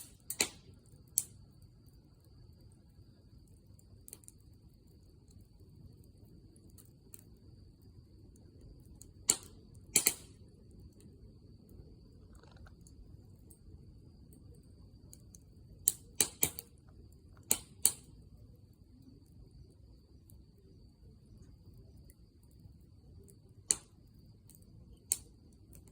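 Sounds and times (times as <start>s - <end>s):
low steady hiss: 0.0s - 25.9s
wood fire crackling: 0.0s - 25.9s
sharp pops: 9.3s - 10.4s.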